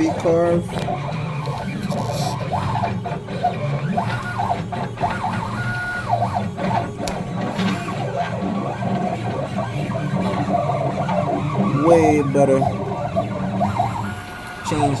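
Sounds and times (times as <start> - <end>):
stepper motors whining: 0.0 - 15.0.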